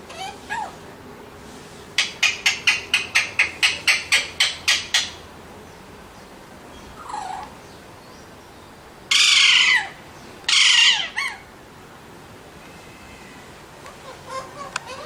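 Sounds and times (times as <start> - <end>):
parakeet calling: 0.1 - 0.8, 2.0 - 5.3, 9.1 - 11.5, 13.9 - 15.0.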